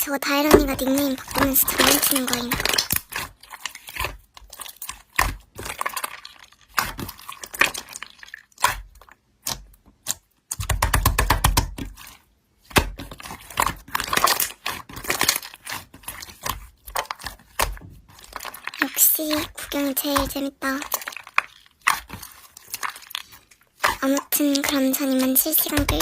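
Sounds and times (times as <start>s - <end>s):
slime crackling and popping: 0.3s - 26.0s.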